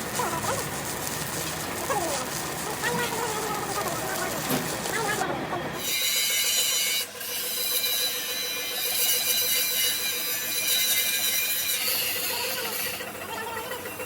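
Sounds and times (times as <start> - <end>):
power tool whining: 2.8 - 14.0.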